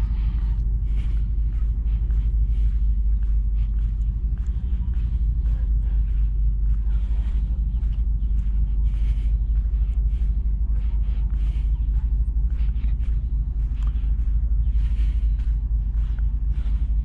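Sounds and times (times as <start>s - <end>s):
scuffing footsteps: 0.0s - 17.0s.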